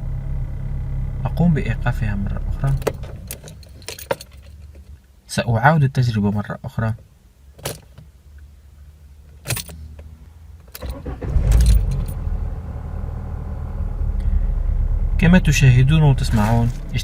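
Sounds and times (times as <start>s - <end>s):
car engine idling: 0.0s - 4.8s, 10.8s - 17.0s
keys jangling in ignition: 2.7s - 5.0s, 9.4s - 9.8s, 10.7s - 12.3s.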